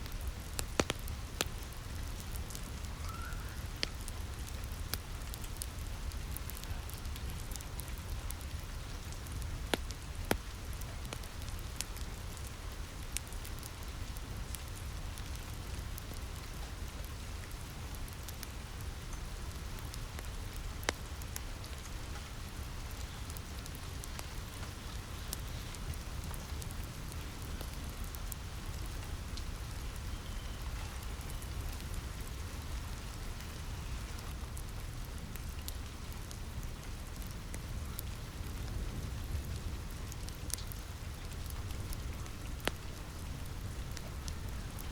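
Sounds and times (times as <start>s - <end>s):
fireplace crackling and popping: 0.0s - 44.9s
rain falling on a roof: 0.0s - 44.9s.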